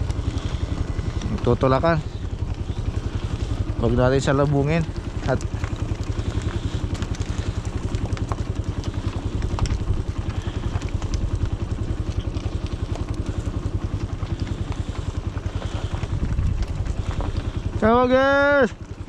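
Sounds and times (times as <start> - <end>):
small engine idling: 0.0 - 19.0.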